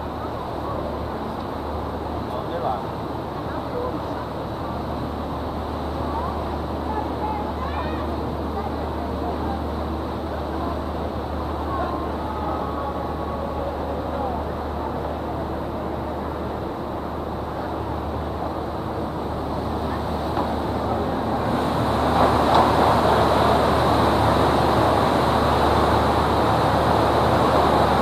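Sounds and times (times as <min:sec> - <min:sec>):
boat engine humming: 0:00.0 - 0:28.0
water noise: 0:00.0 - 0:28.0
rushing wind: 0:13.1 - 0:28.0.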